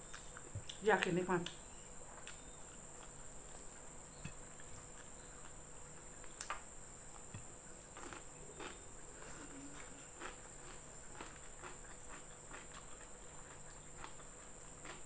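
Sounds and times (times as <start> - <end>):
person chewing: 1.4 - 3.7, 4.3 - 15.0.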